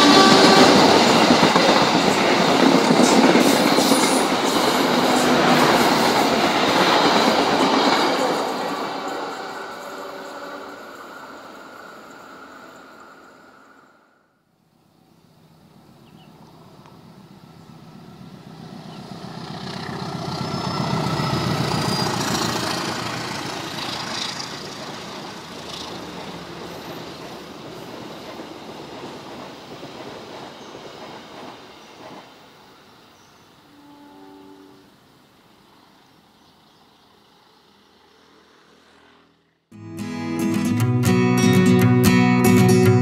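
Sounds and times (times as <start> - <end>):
diesel locomotive passing: 0.0 - 14.5, 15.1 - 43.0.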